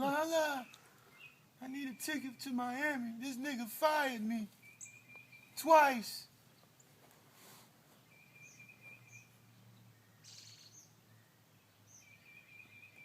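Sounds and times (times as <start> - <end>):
faint bird trill: 4.5 - 5.6, 8.0 - 13.0.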